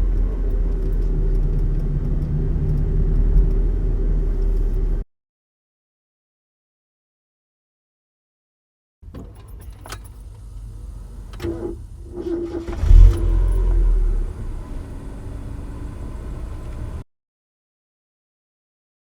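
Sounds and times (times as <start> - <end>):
car engine rumble: 0.0 - 5.0, 9.1 - 17.0
engine whine: 0.0 - 5.0, 9.9 - 17.0.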